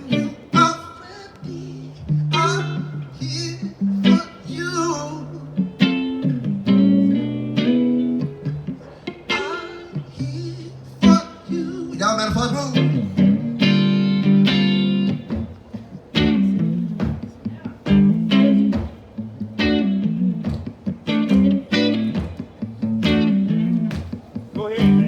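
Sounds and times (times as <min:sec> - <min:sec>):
guitar playing plucked notes: 0:00.0 - 0:25.0.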